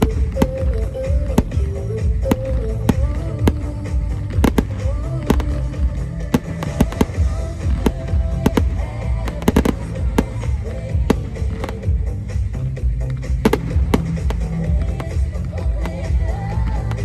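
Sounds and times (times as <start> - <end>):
fireworks bangs: 0.0 - 12.0
loud music with heavy bass: 0.0 - 17.0.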